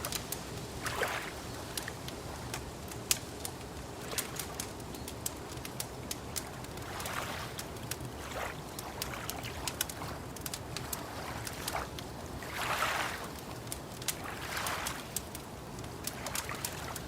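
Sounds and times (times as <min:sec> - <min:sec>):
water lapping: 0:00.0 - 0:17.0
wood fire crackling: 0:00.0 - 0:17.0.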